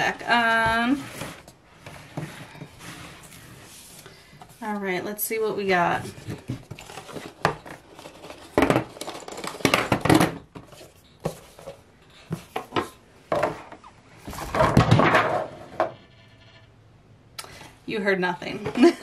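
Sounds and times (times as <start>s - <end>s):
boxed items knocking and clattering: 5.7s - 15.9s.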